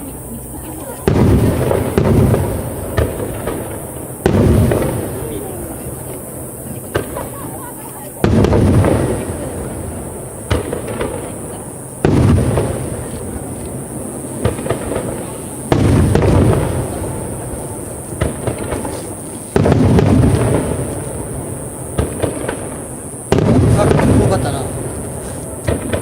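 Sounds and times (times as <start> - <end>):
firework shells booming: 0.0 - 26.0
crackling pops: 8.2 - 26.0.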